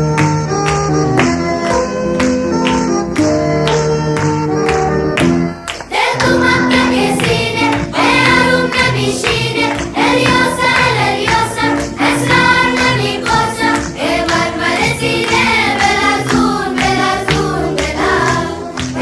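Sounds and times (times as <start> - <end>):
instrumental background music: 0.0 - 19.0
group of voices singing: 5.9 - 19.0.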